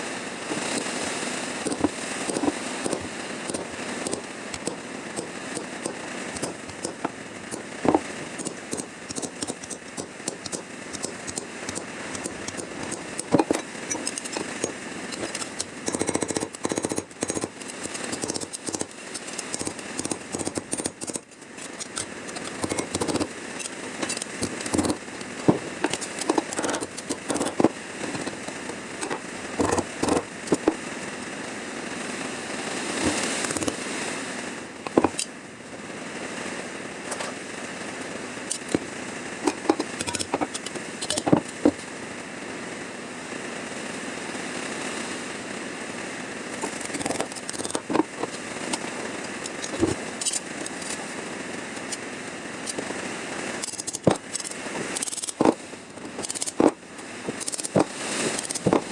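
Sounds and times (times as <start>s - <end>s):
welder crackling hiss: 0.0s - 31.0s, 32.5s - 35.3s, 46.5s - 58.9s.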